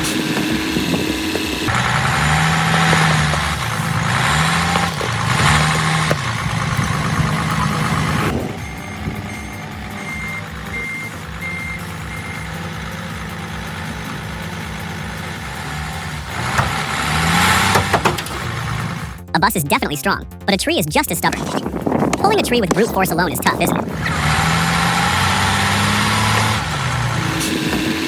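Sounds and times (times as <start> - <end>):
heavy vehicle engine revving: 0.0 - 19.3, 23.1 - 28.0
reversing alarm beeps: 8.4 - 12.6.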